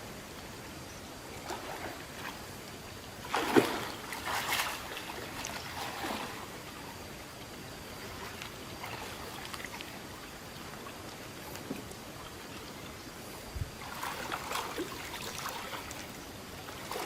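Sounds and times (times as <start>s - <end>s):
faint steady hiss: 0.0s - 17.0s
water splashing: 3.2s - 7.0s, 8.0s - 13.0s, 13.8s - 17.0s.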